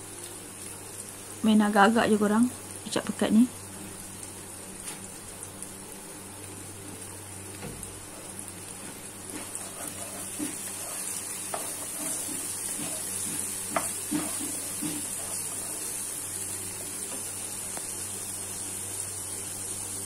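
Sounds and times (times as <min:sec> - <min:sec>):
spice paste sizzling in a wok: 0:00.0 - 0:20.0
spatula tapping a pan: 0:09.3 - 0:15.8.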